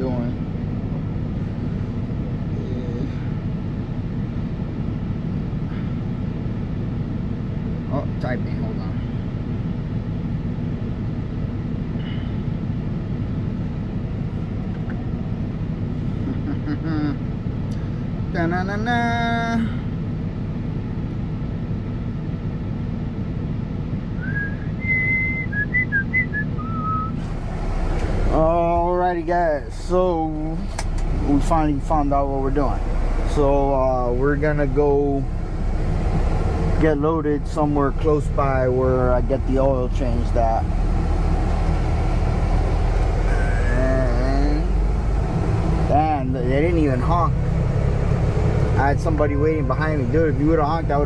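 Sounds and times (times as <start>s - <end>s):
diesel truck engine idling: 0.0s - 51.0s
person whistling a tune: 24.2s - 27.2s.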